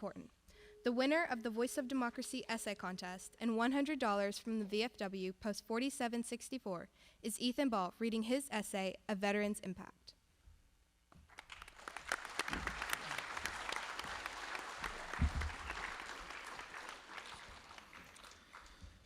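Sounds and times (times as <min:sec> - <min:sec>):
audience applauding: 0:11.3 - 0:19.0.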